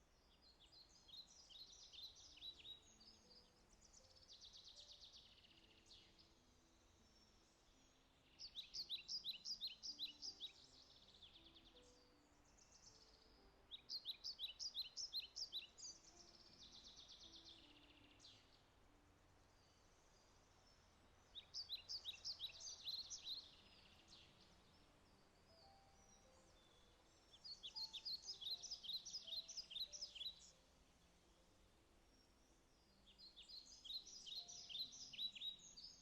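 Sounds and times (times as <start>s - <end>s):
faint steady hiss: 0.0s - 36.0s
songbird singing: 0.0s - 36.0s.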